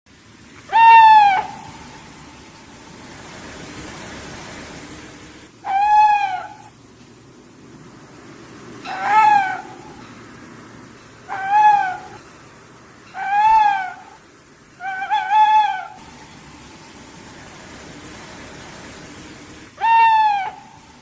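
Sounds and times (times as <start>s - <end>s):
owl calling: 0.6s - 2.9s, 5.6s - 6.8s, 8.8s - 10.2s, 11.2s - 12.4s, 13.0s - 14.2s, 14.8s - 17.4s, 19.8s - 21.0s.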